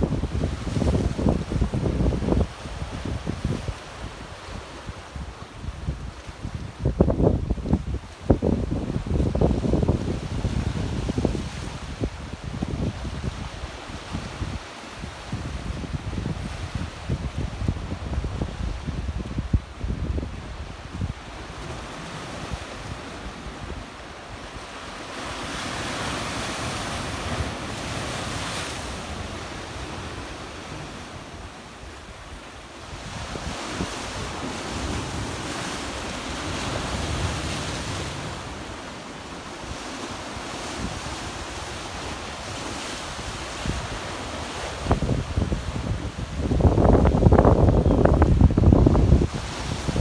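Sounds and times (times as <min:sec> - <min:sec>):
wind buffeting microphone: 0:15.3 - 0:21.3, 0:40.6 - 0:50.0.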